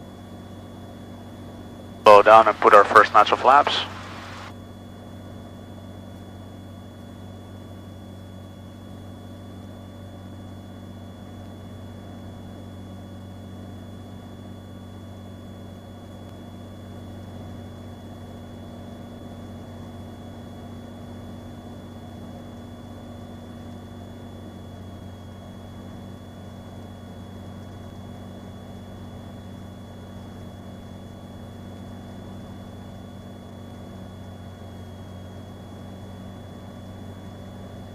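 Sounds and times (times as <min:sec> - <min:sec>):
aircraft engine and propeller droning: 0:00.1 - 0:05.4
faint high whine: 0:02.0 - 0:04.5.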